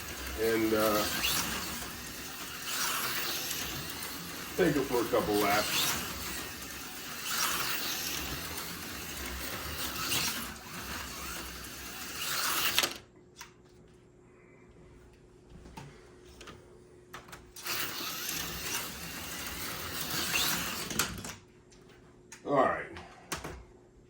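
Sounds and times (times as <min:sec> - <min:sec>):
slot car motor whine: 0:00.0 - 0:13.0, 0:17.6 - 0:21.4.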